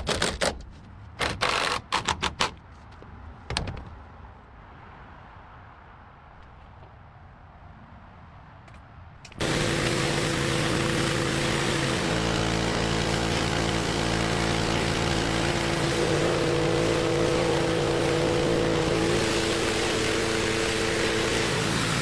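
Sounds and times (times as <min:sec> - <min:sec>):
motor-driven machine running: 0:09.4 - 0:22.0.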